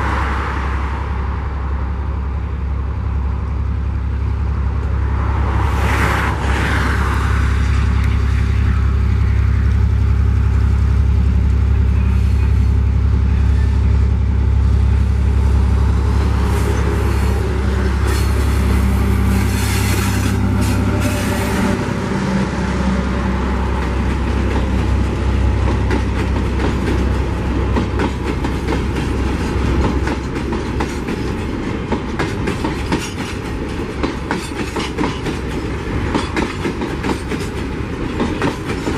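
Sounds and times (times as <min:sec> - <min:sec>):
diesel locomotive engine running: 0:00.0 - 0:38.9
train wheels clicking over rail joints: 0:23.7 - 0:38.9.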